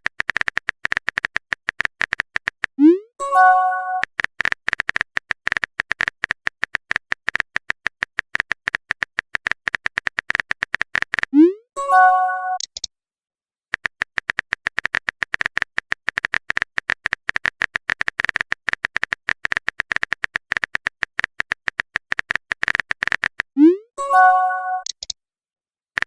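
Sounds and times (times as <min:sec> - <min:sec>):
phone keyboard typing clicks: 0:00.0 - 0:02.8, 0:03.4 - 0:11.4, 0:12.5 - 0:12.9, 0:13.7 - 0:25.2
short message chime: 0:03.2 - 0:04.0.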